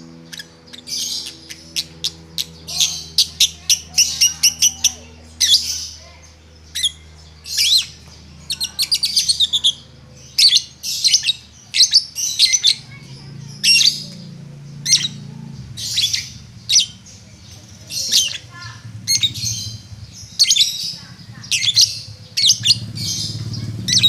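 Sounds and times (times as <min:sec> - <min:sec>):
lovebird high chirps: 0:06.7 - 0:14.2, 0:14.8 - 0:24.0.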